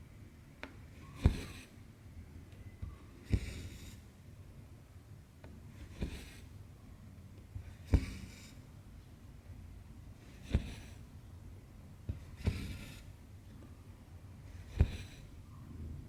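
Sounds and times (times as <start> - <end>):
thread rasping through cloth: 0.6 - 1.8, 3.2 - 4.1, 5.7 - 6.5, 7.6 - 8.6, 10.2 - 11.1, 12.1 - 13.2, 14.5 - 15.3.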